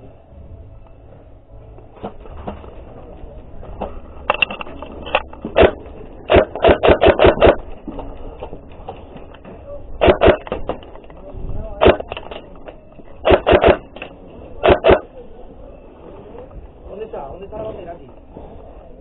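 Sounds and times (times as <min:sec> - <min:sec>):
sharp clacks: 0:04.3 - 0:07.6, 0:11.8 - 0:15.0.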